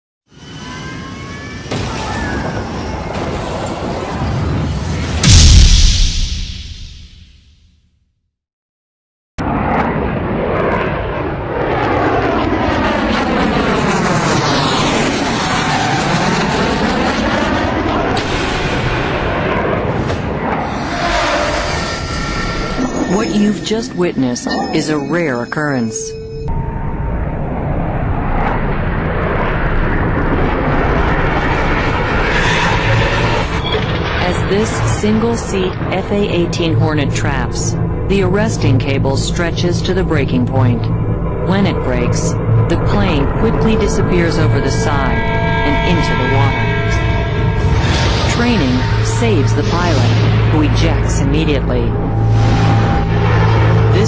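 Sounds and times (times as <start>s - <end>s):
plane passing close by: 9.4s - 23.6s, 26.6s - 54.0s
jet engine rushing: 9.4s - 24.2s, 41.5s - 54.0s.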